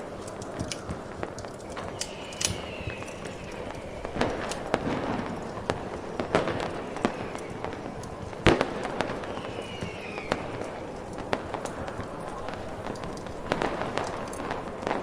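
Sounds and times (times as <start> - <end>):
falling firework whistle: 0.0 - 15.0
fireworks bangs and pops: 0.0 - 15.0
steady hiss: 0.0 - 15.0.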